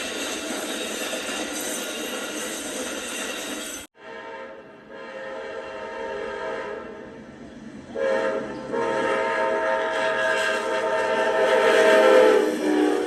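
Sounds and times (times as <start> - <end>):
train noise: 0.0 - 13.0
locomotive air horn chord: 4.0 - 7.2, 7.9 - 13.0.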